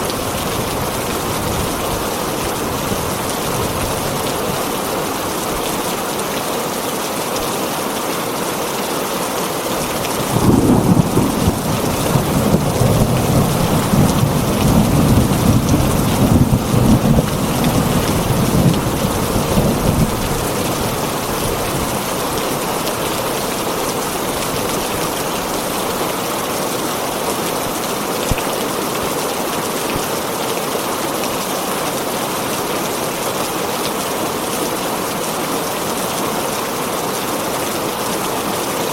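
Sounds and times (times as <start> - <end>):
heavy rain on a tin roof: 0.0 - 38.9
thunder rumbling: 9.8 - 22.0.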